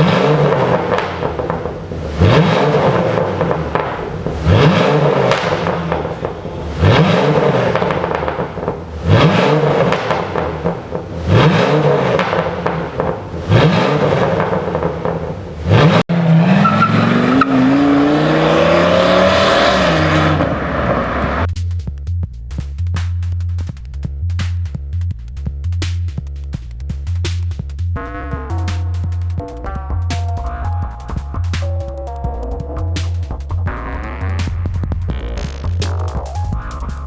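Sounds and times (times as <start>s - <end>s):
pickup engine revving: 0.0s - 21.6s.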